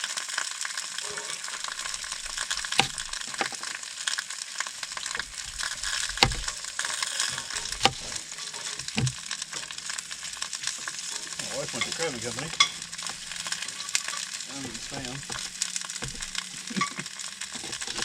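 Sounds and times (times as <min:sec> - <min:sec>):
sausages sizzling in skillets: 0:00.0 - 0:18.0
metal tongs clicking on skillet: 0:11.0 - 0:18.0.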